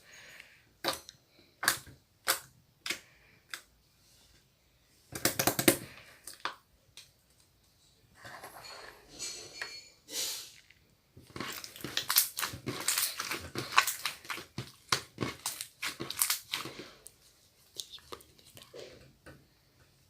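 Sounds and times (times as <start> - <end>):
slime squeezed crackling: 11.3 - 17.0.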